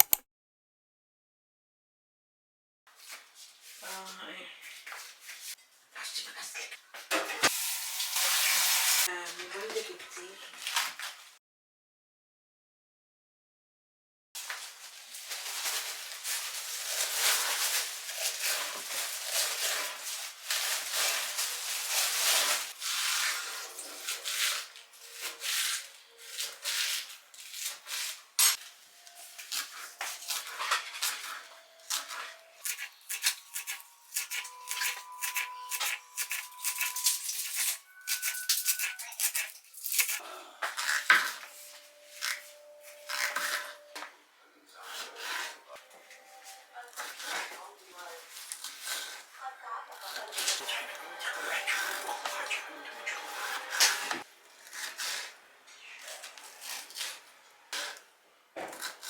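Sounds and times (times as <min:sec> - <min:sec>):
sharp clicks and clinks: 0:00.0 - 0:00.2
objects rustling and scraping: 0:14.4 - 0:44.2, 0:44.8 - 0:49.4, 0:50.0 - 0:59.0.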